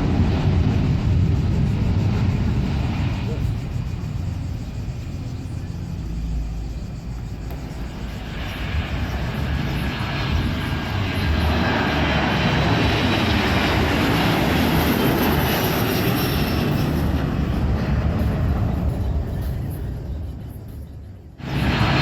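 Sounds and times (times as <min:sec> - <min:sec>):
airliner engines rumbling: 0:00.0 - 0:22.0
faint falling whine: 0:00.9 - 0:14.0.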